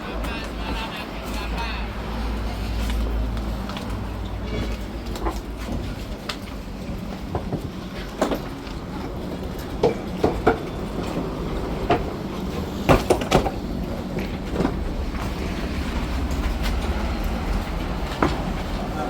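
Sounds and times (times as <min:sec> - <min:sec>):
truck engine and road rumble: 0:00.0 - 0:19.0
truck body knocking and rattling: 0:03.8 - 0:19.0.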